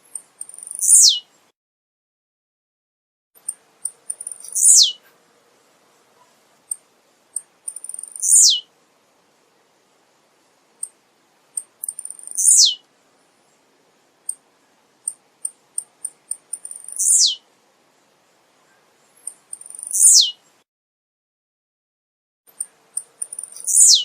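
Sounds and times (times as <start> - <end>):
bird singing high chips and downslide: 0.1 - 1.3, 3.4 - 5.0, 7.4 - 8.7, 11.6 - 12.8, 15.1 - 17.4, 19.2 - 20.4, 22.6 - 24.0.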